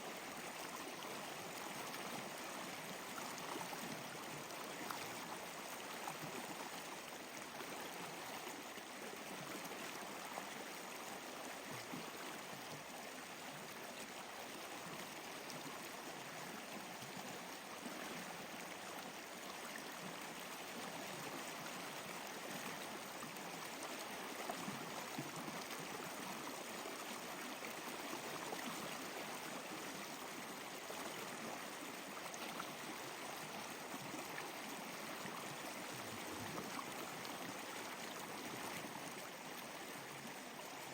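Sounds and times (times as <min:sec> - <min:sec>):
stream water flowing: 0:00.0 - 0:40.9.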